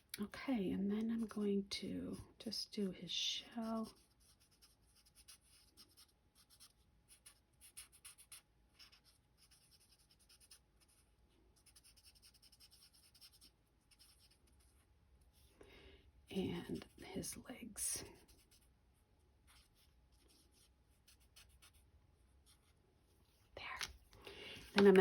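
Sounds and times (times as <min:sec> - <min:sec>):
marker scratching on cardstock: 0:03.8 - 0:14.8.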